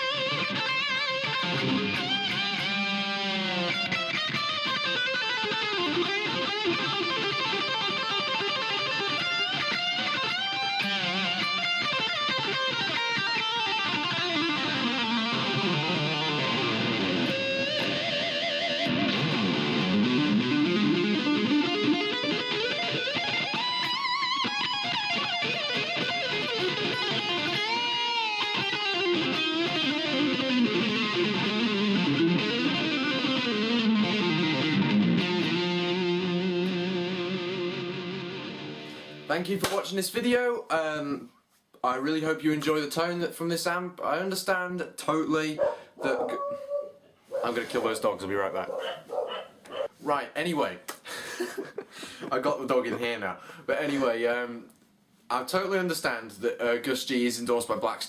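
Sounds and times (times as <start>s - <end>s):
distorted electric guitar riffs: 0.0s - 39.8s.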